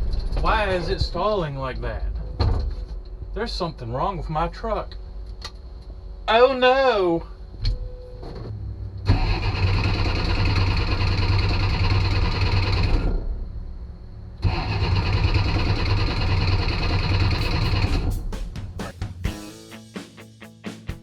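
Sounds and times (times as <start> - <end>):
engine cranking on starter: 9.0 - 13.2, 14.4 - 18.2.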